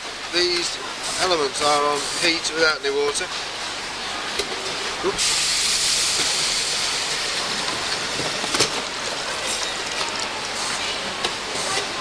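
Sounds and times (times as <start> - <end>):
steam hissing: 5.0 - 8.5.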